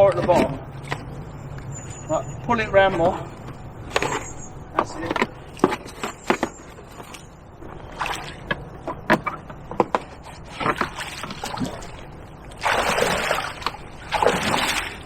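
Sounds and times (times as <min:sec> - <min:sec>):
water and mud splashing: 0:05.0 - 0:15.0.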